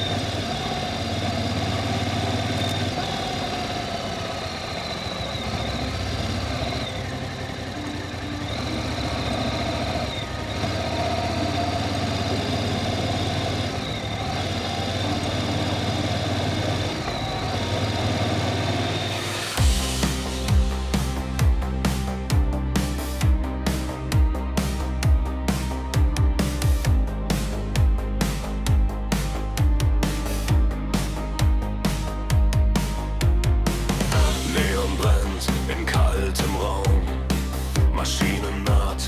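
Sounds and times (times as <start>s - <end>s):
motorcycle engine running: 0.0s - 39.0s
music with a beat: 19.5s - 39.0s.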